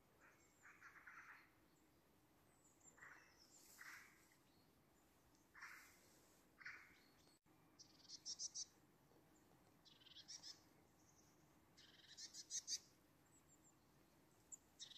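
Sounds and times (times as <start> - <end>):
high-pitched bird calls: 7.8 - 8.7, 11.8 - 12.9.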